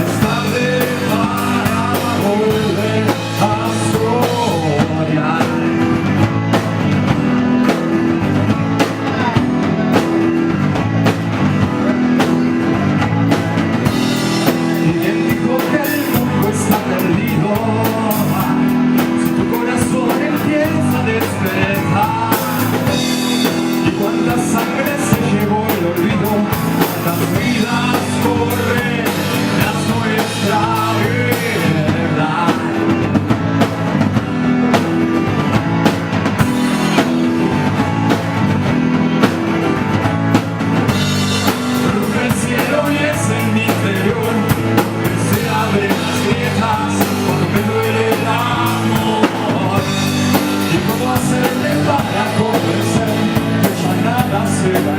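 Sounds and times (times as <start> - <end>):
person singing: 0.0 - 6.1, 14.0 - 33.3, 41.4 - 54.9
live rock band playing: 0.0 - 54.9.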